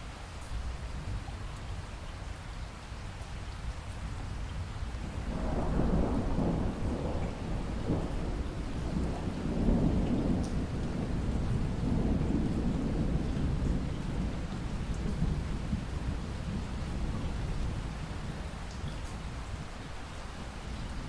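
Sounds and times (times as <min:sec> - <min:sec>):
steady rain: 0:00.0 - 0:21.0
thunder rumbling: 0:05.0 - 0:18.9.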